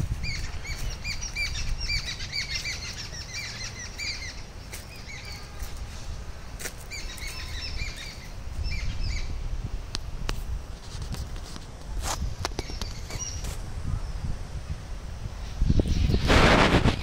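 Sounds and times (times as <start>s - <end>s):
small birds chirping: 0.0s - 9.5s, 12.2s - 14.3s.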